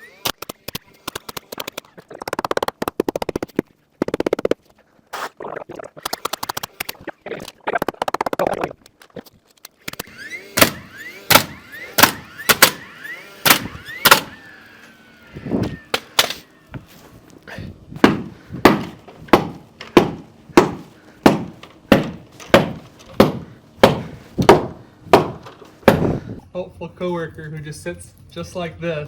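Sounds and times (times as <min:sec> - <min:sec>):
hammer driving nails into wood: 0:09.8 - 0:14.5, 0:15.6 - 0:16.5, 0:18.0 - 0:26.2.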